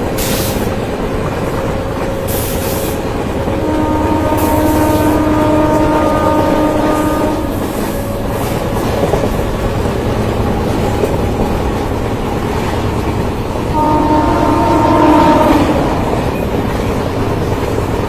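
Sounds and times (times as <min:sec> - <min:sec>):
train wheels rumbling on track: 0:00.0 - 0:18.0
train horn chord: 0:03.4 - 0:09.2, 0:13.4 - 0:18.0.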